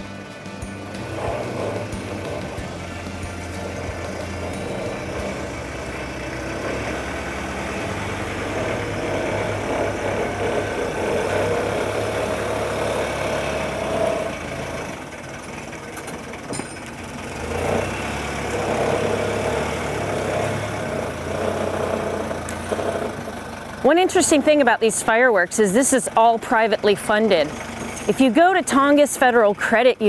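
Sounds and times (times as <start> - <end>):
helicopter engine and rotor drone: 0.0 - 12.6.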